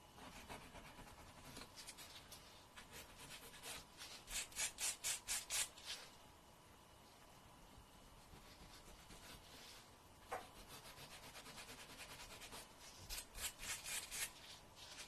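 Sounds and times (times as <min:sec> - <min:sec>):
nail file rasping: 0:03.1 - 0:05.7, 0:10.6 - 0:14.3.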